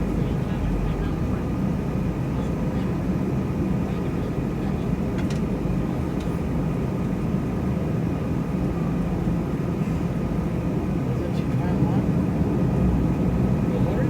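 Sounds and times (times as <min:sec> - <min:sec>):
airliner engine hum: 0:00.0 - 0:14.0.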